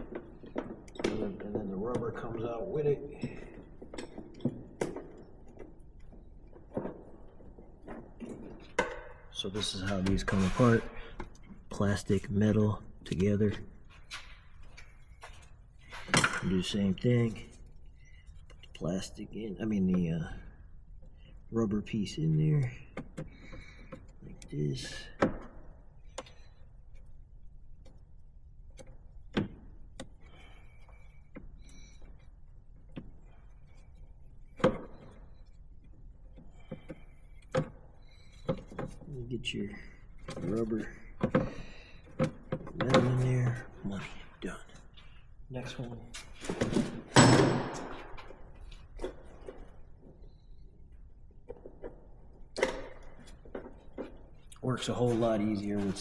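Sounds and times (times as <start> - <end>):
light clicks and knocks of parts: 3.1 - 21.5.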